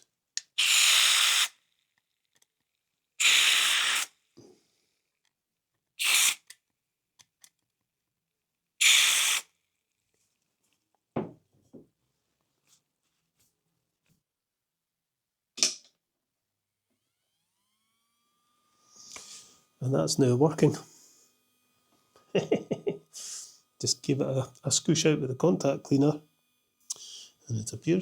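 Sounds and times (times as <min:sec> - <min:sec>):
aerosol spray hissing: 0:00.6 - 0:01.6, 0:03.2 - 0:04.1, 0:06.0 - 0:06.5, 0:08.8 - 0:09.5, 0:18.8 - 0:19.6, 0:22.3 - 0:24.2.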